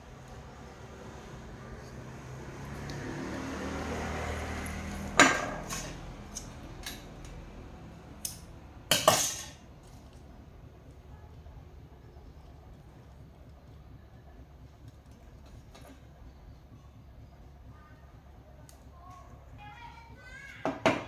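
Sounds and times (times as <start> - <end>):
metal tools clanking on workbench: 5.2 - 7.0, 8.9 - 9.6.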